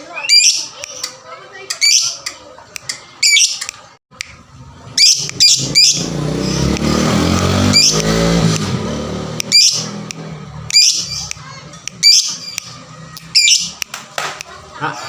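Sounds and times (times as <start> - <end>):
vehicle engine: 4.1 - 15.0
lovebird chirping: 5.0 - 6.8, 9.4 - 10.0, 12.0 - 12.7, 13.3 - 13.8.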